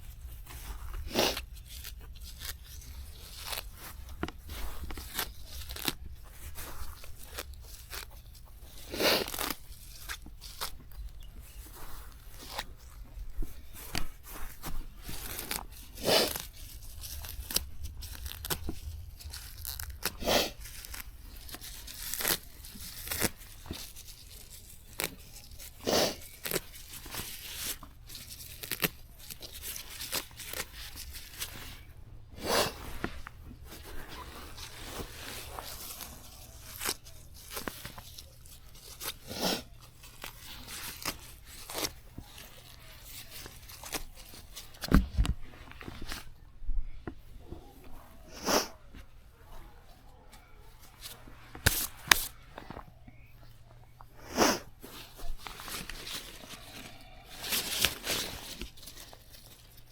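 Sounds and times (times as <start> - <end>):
plants being torn and snapped: 0.2 - 46.4, 50.9 - 52.9, 54.2 - 59.9.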